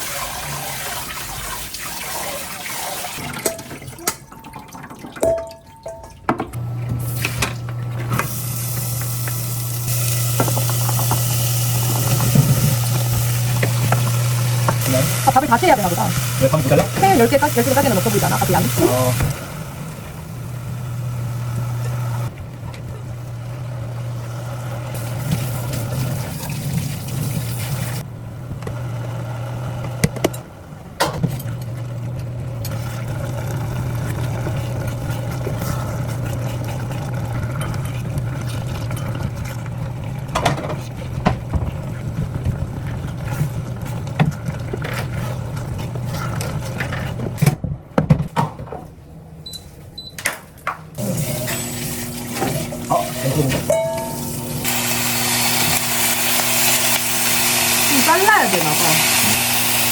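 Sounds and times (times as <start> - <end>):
low mechanical hum: 5.9 - 59.9.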